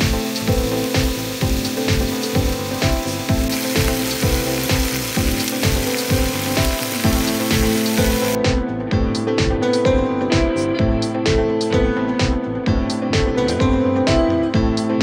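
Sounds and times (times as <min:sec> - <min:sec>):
chicken sizzling in oil: 0:00.0 - 0:08.4
background music with beat: 0:00.0 - 0:15.0.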